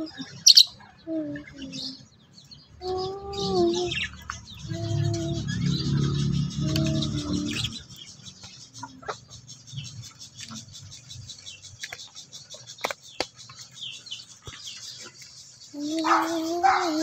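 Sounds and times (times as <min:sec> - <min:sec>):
bird chirping softly: 0:00.0 - 0:17.0.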